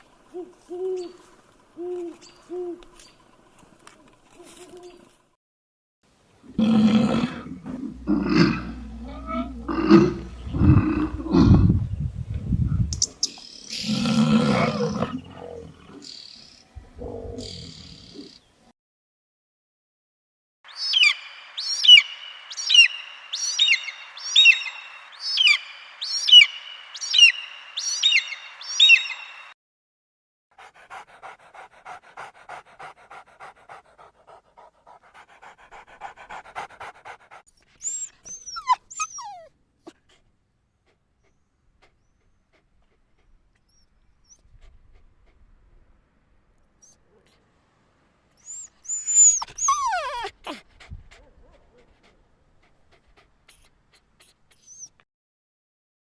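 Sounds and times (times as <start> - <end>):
animal calling: 6.6 - 11.7, 37.8 - 39.5, 48.4 - 50.6, 53.5 - 55.0.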